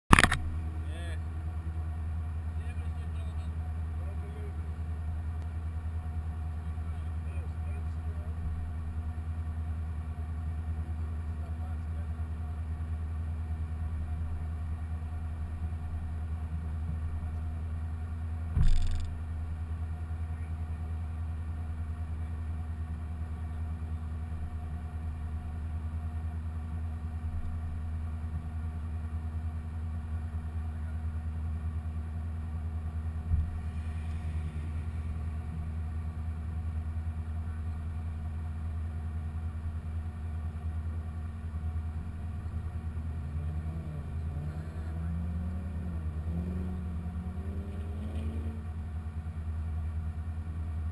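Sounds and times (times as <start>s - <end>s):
car engine idling: 0.1s - 50.9s
sharp knock: 18.6s - 19.1s.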